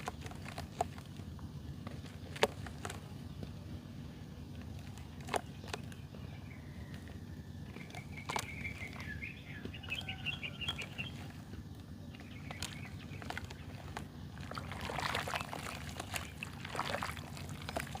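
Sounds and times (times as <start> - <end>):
mud crumbling by hand: 0.0 - 3.6, 7.6 - 18.0
steady low hum: 0.0 - 18.0
bird chirping: 5.2 - 14.3.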